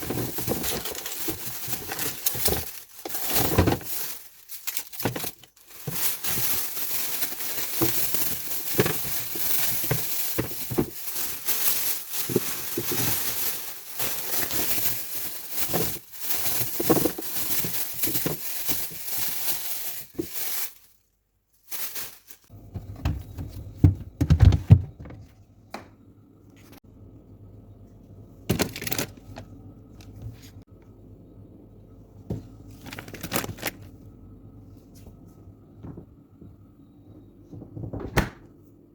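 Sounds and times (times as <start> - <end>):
plastic packaging crinkling: 0.0 - 23.7, 28.5 - 30.2, 32.7 - 33.9.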